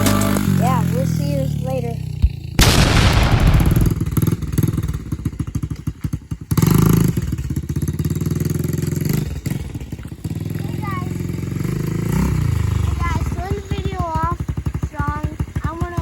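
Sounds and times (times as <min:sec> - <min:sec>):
dirt bike engine revving: 0:00.0 - 0:16.0
loud burst of noise: 0:02.6 - 0:04.5.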